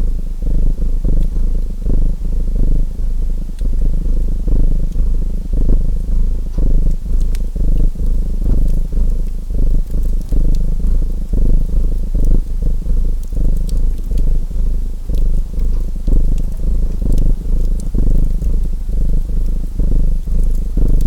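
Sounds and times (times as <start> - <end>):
cat purring: 0.0 - 21.0
wood fire crackling: 0.0 - 21.0.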